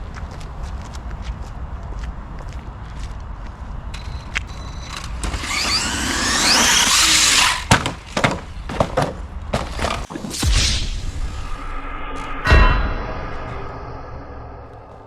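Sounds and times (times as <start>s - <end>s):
tyre noise on concrete: 0.0s - 10.3s
electric motor whining: 4.9s - 7.7s.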